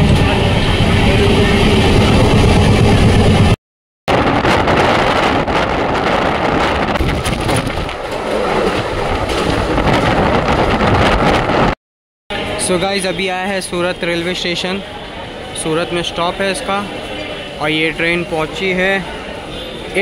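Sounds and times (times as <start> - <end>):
wind rushing on microphone: 0.0 - 11.8
train rumbling: 0.0 - 20.0.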